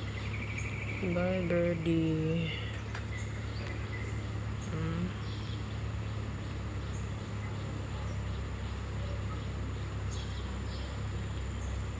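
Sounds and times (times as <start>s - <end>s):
high bird chirps: 0.0s - 1.4s
low background hum: 0.0s - 11.9s.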